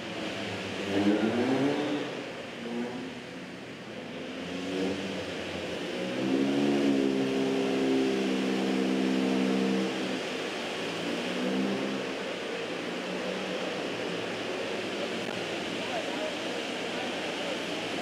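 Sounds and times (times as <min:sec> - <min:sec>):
race car engine revving: 0:00.4 - 0:03.1.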